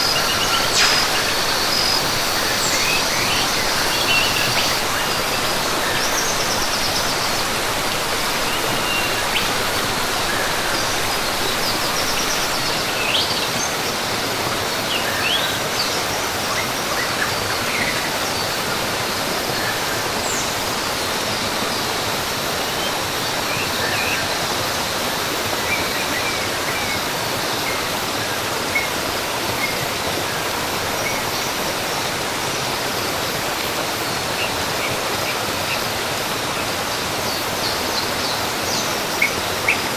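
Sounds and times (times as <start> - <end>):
birds chirping and whistling: 0.0 - 13.3
rushing water: 0.0 - 39.9.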